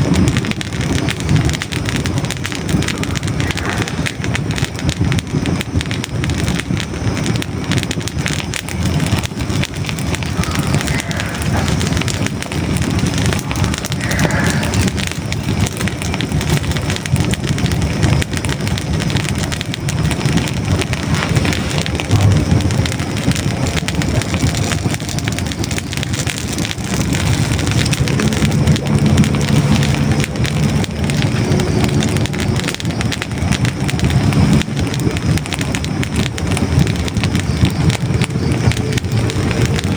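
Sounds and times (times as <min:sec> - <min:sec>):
flames rushing: 0:00.0 - 0:39.9
logs crackling and popping: 0:00.0 - 0:39.9.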